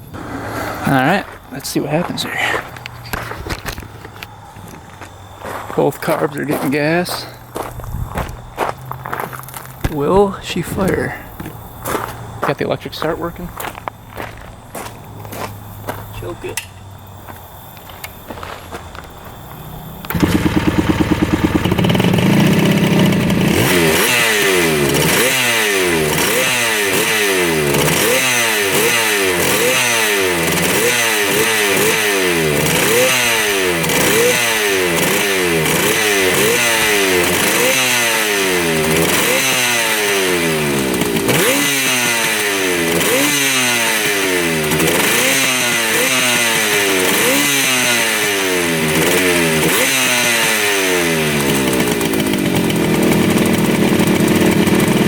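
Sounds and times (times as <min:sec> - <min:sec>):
two-stroke engine revving: 0:00.0 - 0:04.3, 0:19.8 - 0:55.0.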